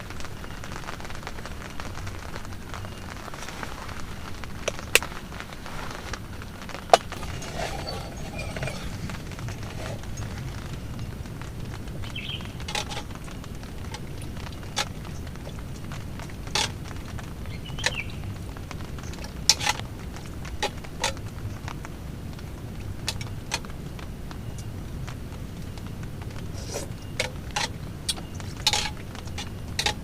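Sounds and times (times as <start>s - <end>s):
rain: 0.0s - 30.0s
wind: 0.0s - 30.0s.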